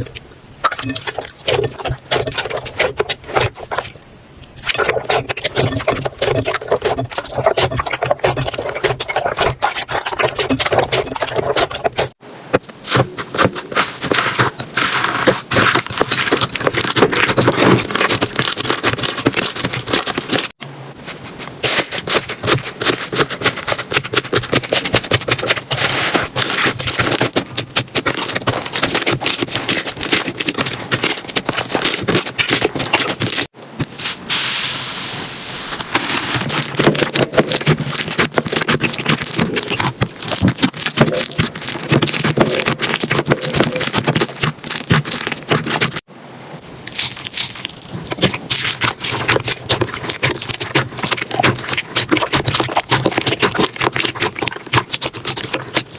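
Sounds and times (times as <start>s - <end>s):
slime squishing and popping: 12.9s - 20.6s, 21.6s - 33.5s, 35.8s - 46.1s, 46.9s - 55.9s.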